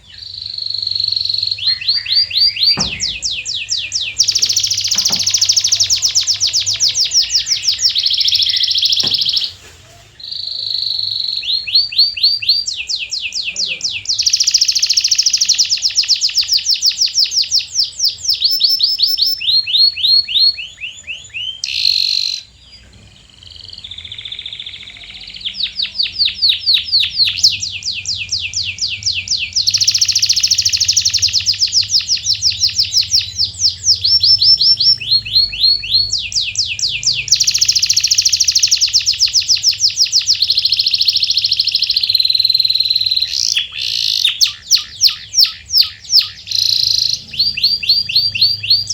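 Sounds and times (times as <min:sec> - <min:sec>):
canary singing: 0:00.0 - 0:48.9.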